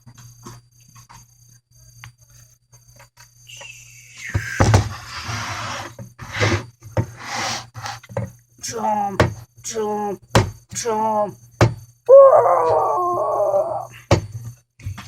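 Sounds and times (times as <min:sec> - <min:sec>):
knocks: 0:10.3 - 0:10.6.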